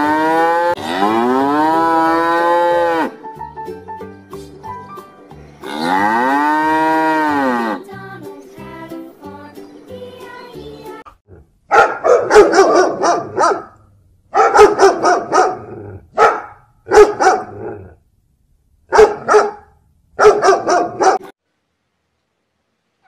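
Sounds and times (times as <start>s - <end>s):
dog barking: 11.7s - 17.7s, 18.9s - 21.3s.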